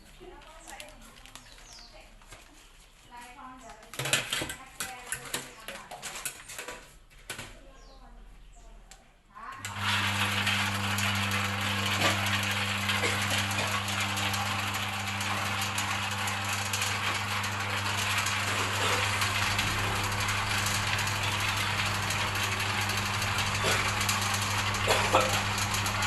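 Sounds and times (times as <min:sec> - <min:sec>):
electric motor hum: 0:09.6 - 0:26.0
machine rattling: 0:09.6 - 0:26.0.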